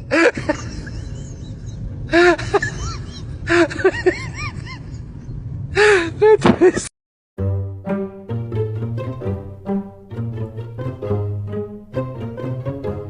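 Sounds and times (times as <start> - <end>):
steady background noise: 0.0 - 6.8.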